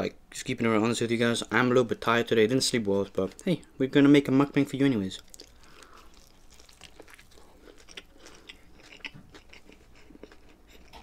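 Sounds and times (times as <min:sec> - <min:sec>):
person chewing food: 0:05.2 - 0:11.0.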